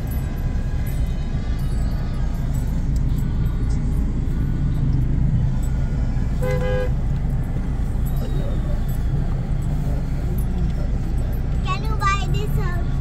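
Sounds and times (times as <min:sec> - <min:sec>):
traffic rumble: 0:00.0 - 0:13.0
car horn toot: 0:06.3 - 0:07.1.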